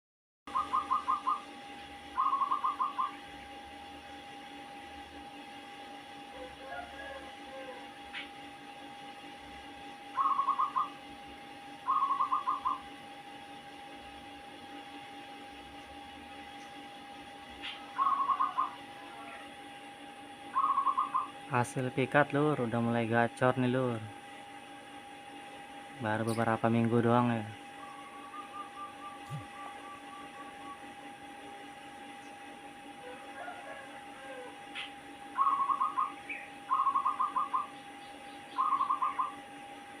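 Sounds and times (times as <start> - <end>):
dove cooing in staccato notes: 0.5 - 1.6, 2.2 - 3.3, 6.3 - 8.3, 10.2 - 11.0, 11.9 - 13.0, 17.6 - 19.6, 20.6 - 21.4, 27.7 - 31.7, 32.9 - 39.6
faint steady hum: 0.5 - 40.0.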